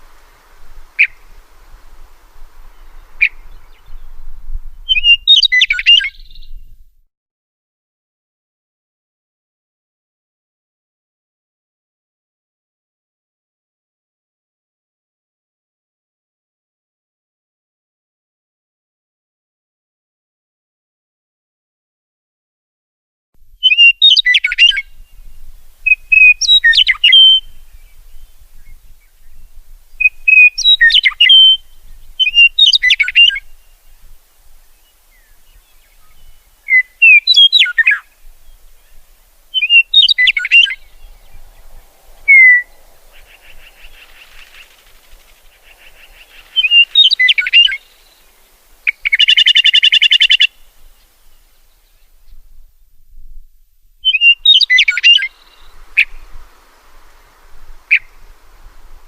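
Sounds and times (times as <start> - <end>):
harsh buzzy bird call: 0.0 - 3.9, 30.0 - 34.0, 34.6 - 51.7, 54.0 - 59.0
songbird singing: 0.0 - 7.0, 23.4 - 59.0.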